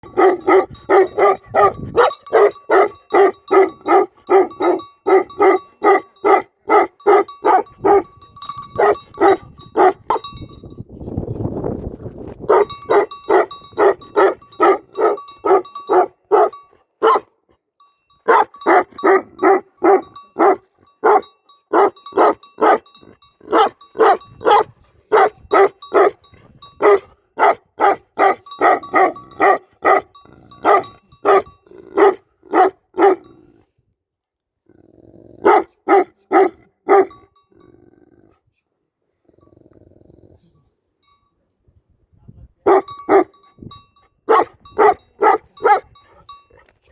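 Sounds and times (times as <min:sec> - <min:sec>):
dog barking deeply: 0:00.0 - 0:08.1, 0:08.8 - 0:10.3, 0:12.4 - 0:17.3, 0:18.3 - 0:22.8, 0:23.5 - 0:26.2, 0:26.8 - 0:33.3, 0:35.4 - 0:37.2, 0:42.6 - 0:43.3, 0:44.3 - 0:45.9.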